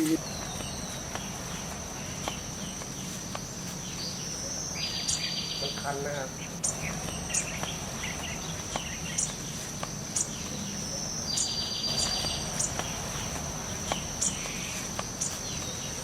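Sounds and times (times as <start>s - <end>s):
insect trill: 0.0s - 16.0s
insects droning: 0.0s - 16.0s.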